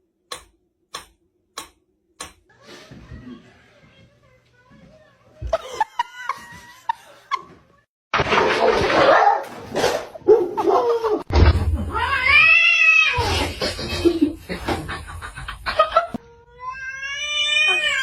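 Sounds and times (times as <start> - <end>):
cat yowling: 16.6 - 18.0.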